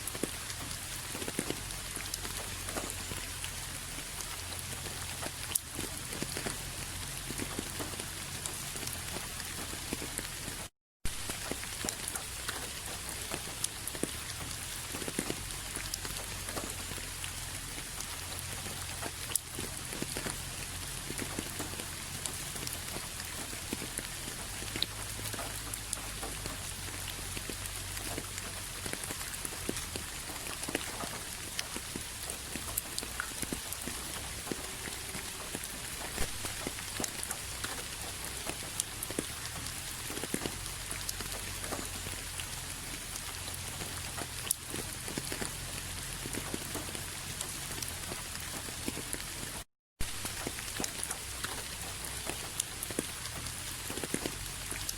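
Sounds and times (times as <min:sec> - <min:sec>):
rain falling: 0:00.0 - 0:54.9
raindrops ticking on surface: 0:00.0 - 0:54.9.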